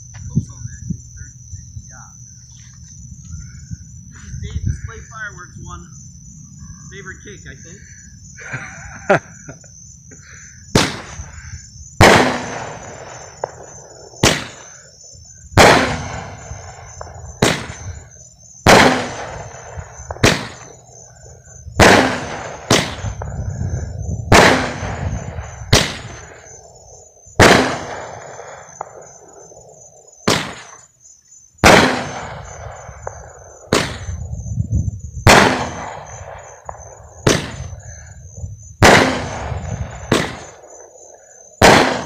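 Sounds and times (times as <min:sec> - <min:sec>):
crickets chirping: 0:00.0 - 0:42.0
fireworks bangs with echo: 0:10.7 - 0:14.8, 0:15.5 - 0:30.9, 0:31.6 - 0:34.4, 0:35.2 - 0:38.1, 0:38.8 - 0:42.0.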